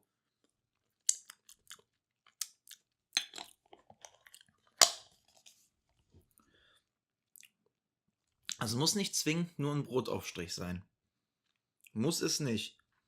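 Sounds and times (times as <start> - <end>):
wet lip and tongue smacks: 1.0 - 5.0.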